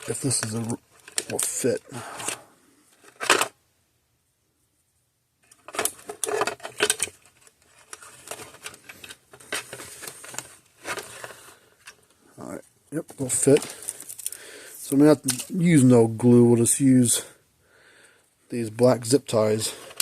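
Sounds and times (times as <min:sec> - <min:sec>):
clicks and rattles of handled parts: 0:00.0 - 0:03.6, 0:05.4 - 0:12.2, 0:13.3 - 0:14.5, 0:19.6 - 0:20.0
plastic scraping: 0:05.4 - 0:12.1.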